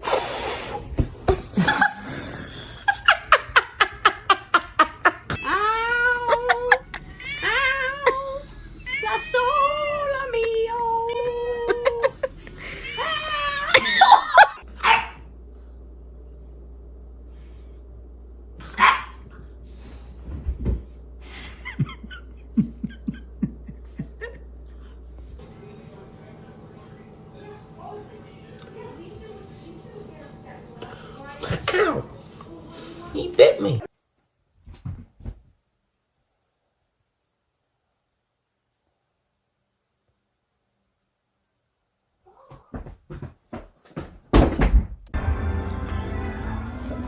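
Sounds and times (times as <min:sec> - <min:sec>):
high-pitched laughter: 0:01.6 - 0:08.4, 0:11.4 - 0:14.6
dog barking: 0:14.8 - 0:15.3, 0:18.6 - 0:19.3.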